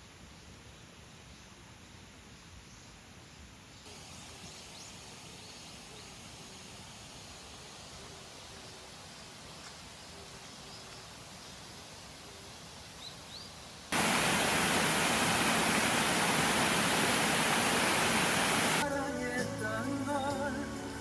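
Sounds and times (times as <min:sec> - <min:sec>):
stream rushing: 0:13.9 - 0:18.9
music: 0:18.8 - 0:21.0.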